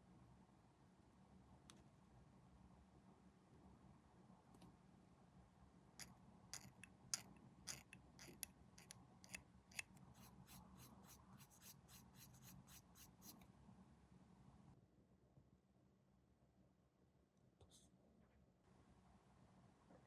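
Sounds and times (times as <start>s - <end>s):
hand cutter snipping plastic: 6.6s - 8.9s.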